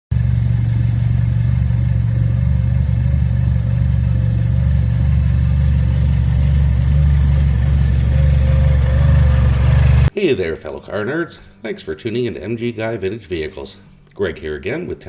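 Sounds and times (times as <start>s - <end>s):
car engine running: 0.1s - 10.1s.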